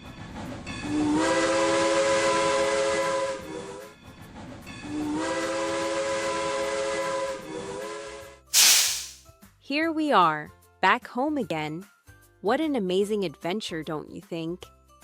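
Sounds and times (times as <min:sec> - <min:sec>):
steam locomotive whistle: 0:01.1 - 0:03.4, 0:05.1 - 0:09.2
steam hissing: 0:08.6 - 0:09.2.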